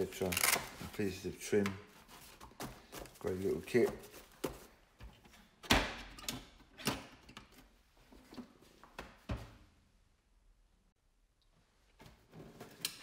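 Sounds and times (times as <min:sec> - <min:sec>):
boxes being handled knocks and clicks: 0:00.2 - 0:09.5.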